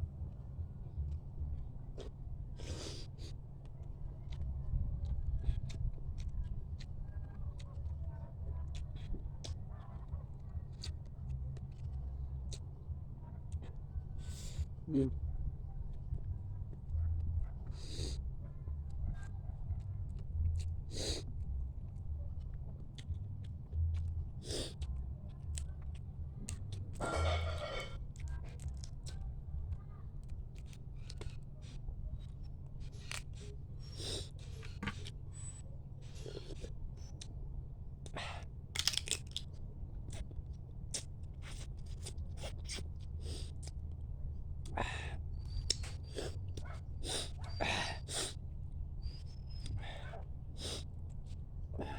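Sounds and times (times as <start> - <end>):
chewing clicks and smacks: 1.0 - 14.7, 15.9 - 37.4, 38.0 - 48.4
crab shell crunching: 38.7 - 39.6.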